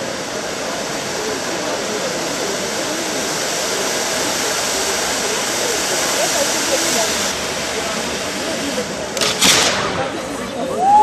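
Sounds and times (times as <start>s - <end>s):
faint voices: 0.0s - 11.0s
firework fountain hissing: 0.0s - 11.0s.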